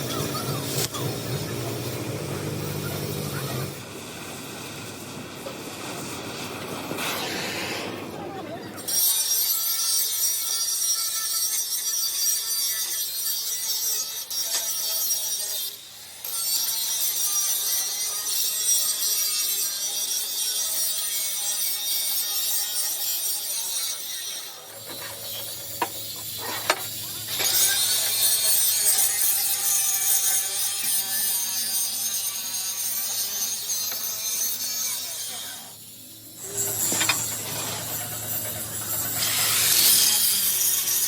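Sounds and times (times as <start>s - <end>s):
power tool hissing on steel: 8.8s - 41.0s.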